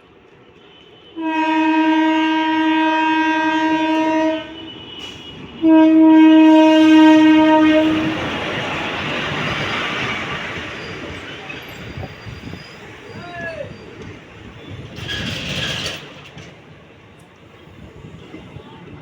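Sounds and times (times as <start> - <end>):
locomotive horn blasts: 0.6 - 8.3.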